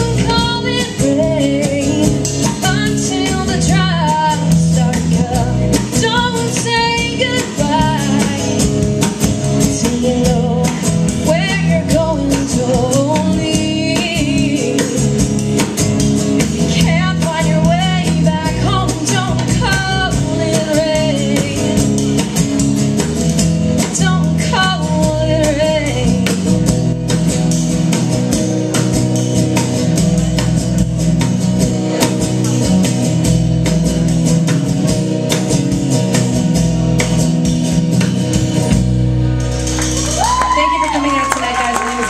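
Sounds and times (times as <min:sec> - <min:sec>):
guitar: 0:00.0 - 0:42.0.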